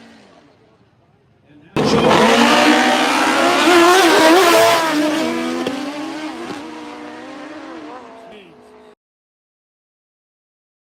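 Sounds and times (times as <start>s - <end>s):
motorcycle engine at high revs: 1.8s - 8.2s.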